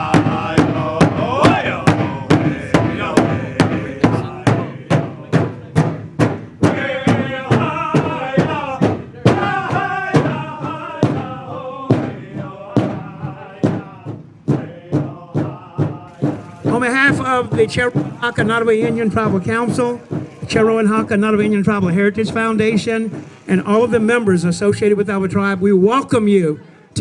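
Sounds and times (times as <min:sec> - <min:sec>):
group chant-style singing: 0:00.0 - 0:21.0
drum beating steadily: 0:00.0 - 0:25.6.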